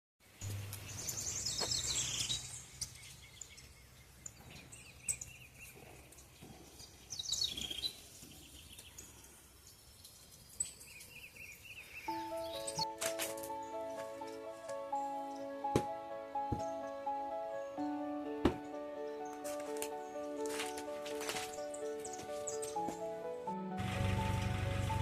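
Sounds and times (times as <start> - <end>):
soft bird chirps: 0.4 - 15.5.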